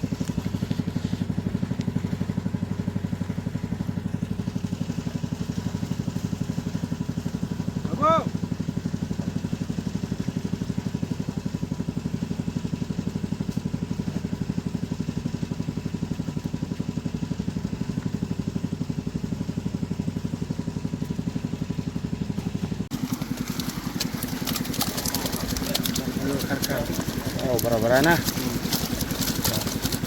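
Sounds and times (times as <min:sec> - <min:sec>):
small engine idling: 0:00.0 - 0:30.0
crackling and clicking: 0:22.9 - 0:30.0.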